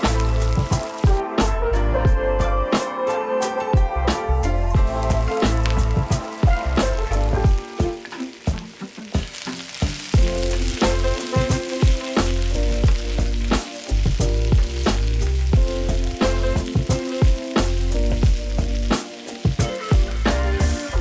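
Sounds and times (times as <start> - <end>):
food sizzling in a pan: 0.0 - 1.2, 4.8 - 21.0
backing music with steady beat: 0.0 - 8.8, 10.2 - 21.0
stirring in a pan: 4.8 - 21.0.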